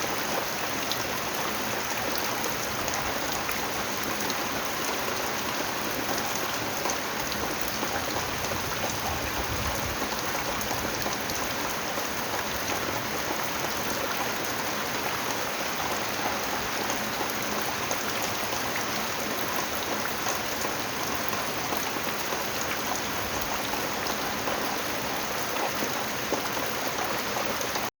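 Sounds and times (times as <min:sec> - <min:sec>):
steady rain falling: 0:00.0 - 0:27.9.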